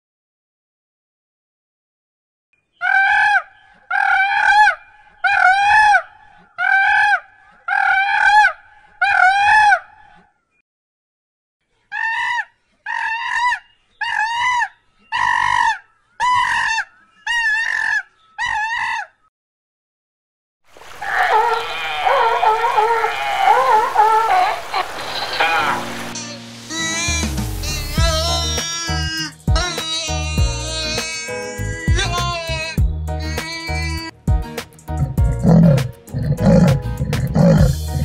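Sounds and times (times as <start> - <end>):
baboon calling: 2.8 - 9.8, 21.0 - 25.7, 35.0 - 38.0.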